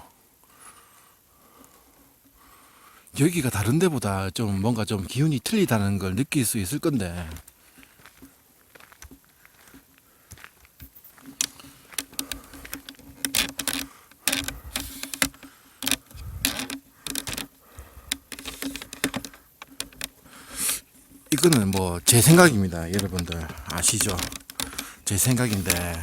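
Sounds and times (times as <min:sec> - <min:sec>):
crunching clicks and taps: 0:06.8 - 0:26.0.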